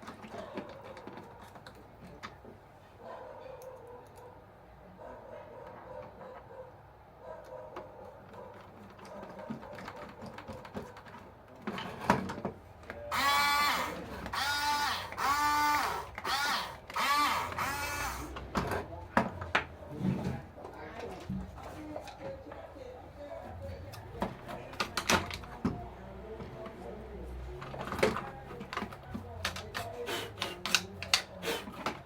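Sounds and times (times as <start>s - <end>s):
handling clicks and knocks: 7.5s - 13.0s, 23.8s - 26.9s, 27.5s - 32.0s
small electric motor whining: 13.1s - 18.3s.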